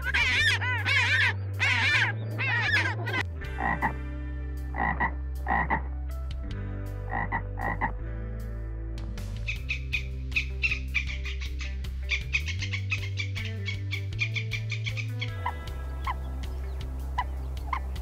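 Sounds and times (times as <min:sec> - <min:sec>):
penguin braying: 0:00.0 - 0:04.0
tree frog croaking: 0:00.0 - 0:04.0, 0:04.7 - 0:05.9, 0:07.1 - 0:07.9, 0:17.2 - 0:18.0.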